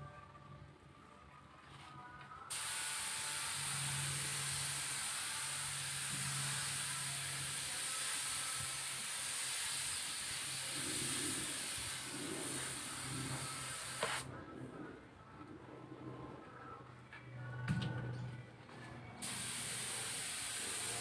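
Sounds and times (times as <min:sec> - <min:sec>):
spray gun hissing: 0:02.5 - 0:14.3, 0:19.2 - 0:21.0.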